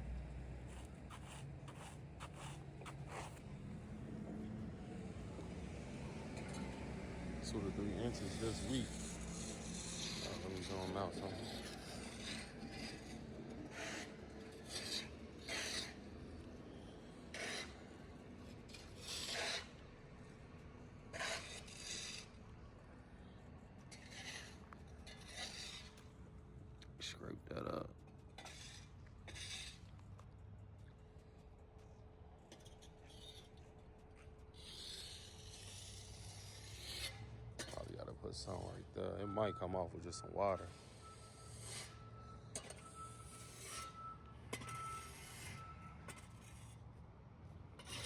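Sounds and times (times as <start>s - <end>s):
short rough rasping scrapes: 7.5s - 16.0s, 17.3s - 17.8s, 18.7s - 19.8s, 21.2s - 22.4s, 23.9s - 26.1s, 28.4s - 30.0s, 47.8s - 48.0s.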